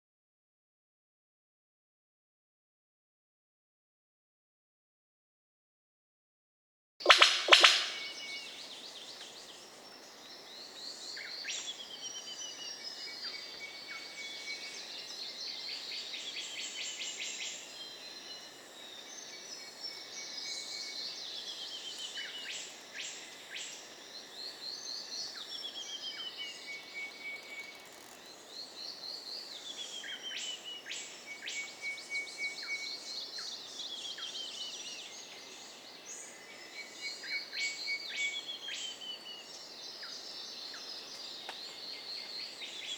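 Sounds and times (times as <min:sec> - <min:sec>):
sharp whip-like bird calls: 0:07.0 - 0:08.4
rapid bird chatter: 0:07.0 - 0:08.8
insects hissing: 0:07.0 - 0:42.9.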